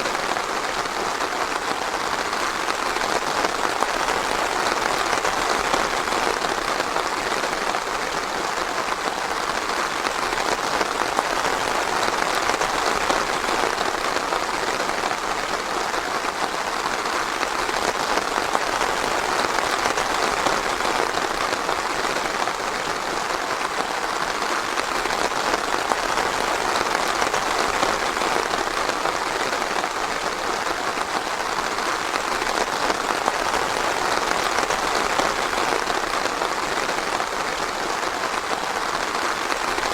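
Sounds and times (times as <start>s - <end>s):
steady dense rainfall: 0.0s - 39.9s.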